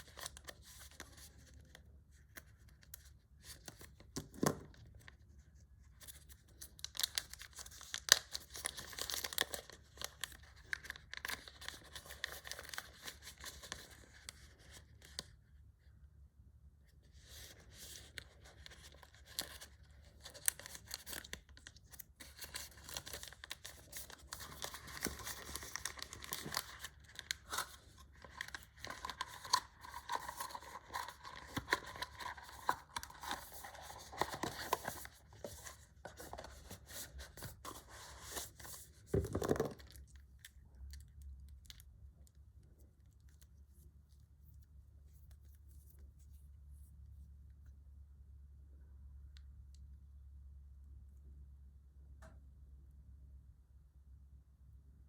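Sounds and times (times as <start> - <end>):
packaging tearing and rustling: 6.8 - 13.9, 18.7 - 38.8
faint low hum: 8.6 - 55.0.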